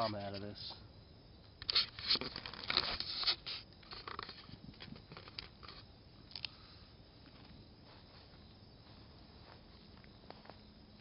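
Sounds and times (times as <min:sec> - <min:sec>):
rustling and scraping in brush: 0:01.7 - 0:05.9.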